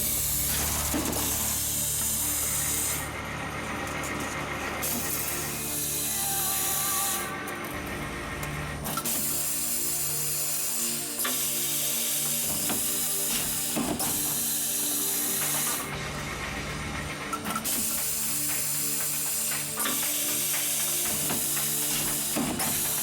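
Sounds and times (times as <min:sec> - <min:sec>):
background music: 0:00.0 - 0:23.0
machine clicking and ratcheting: 0:11.2 - 0:23.0.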